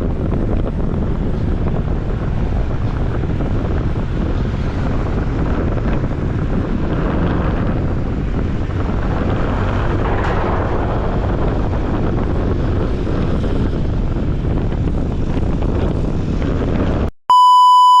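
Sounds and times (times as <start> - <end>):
scooter road noise: 0.0 - 17.1
wind on microphone: 0.0 - 17.1
steady electronic beep tone: 17.3 - 18.0.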